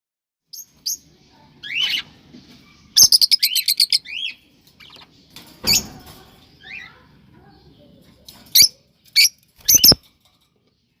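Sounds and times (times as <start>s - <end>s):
cockatiels chirping and whistling: 9.2s - 10.0s.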